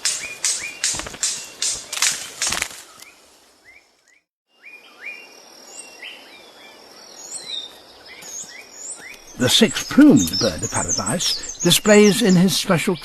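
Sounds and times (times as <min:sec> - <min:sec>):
insects buzzing: 0:00.0 - 0:04.0
birds chirping and whistling: 0:00.0 - 0:06.2, 0:07.1 - 0:13.0.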